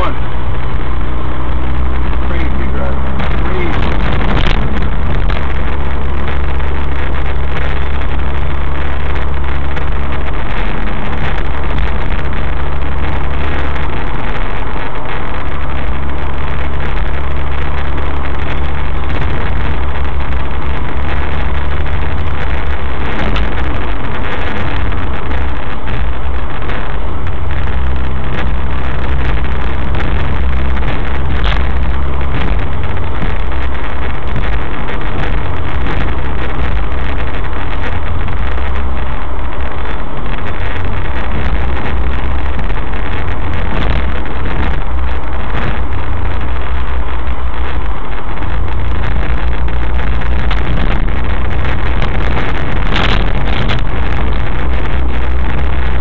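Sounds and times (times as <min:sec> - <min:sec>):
car engine hum: 0:00.0 - 0:56.0
road and tyre noise: 0:00.0 - 0:56.0.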